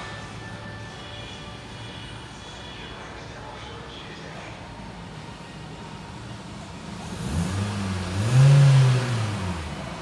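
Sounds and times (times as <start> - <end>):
car engine revving: 6.9 - 10.0.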